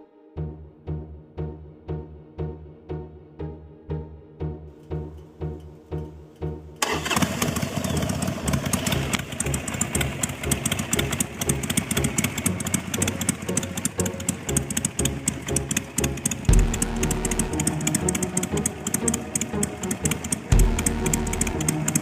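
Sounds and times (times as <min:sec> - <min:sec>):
engine idling with uneven exhaust: 0:06.8 - 0:22.0.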